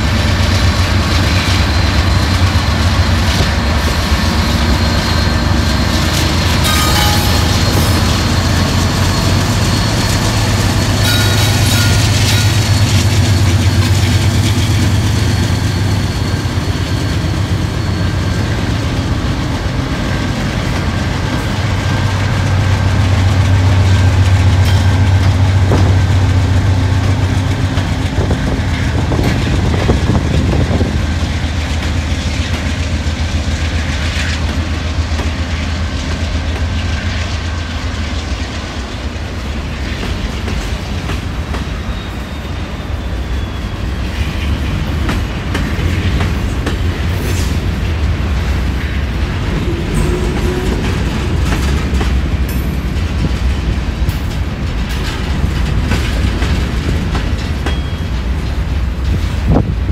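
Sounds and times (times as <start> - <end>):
diesel locomotive engines droning: 0.0 - 59.9
wheels clacking over rail joints: 44.0 - 59.9.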